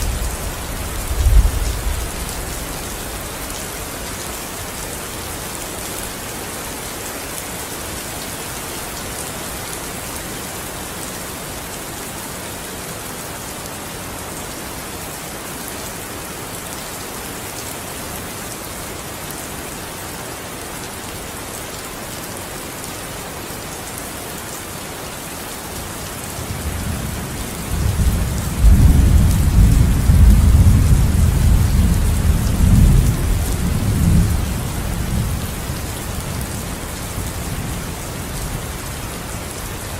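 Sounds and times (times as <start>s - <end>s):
low roll of thunder: 0.0s - 2.5s, 27.7s - 35.3s
steady rain falling: 0.0s - 39.9s.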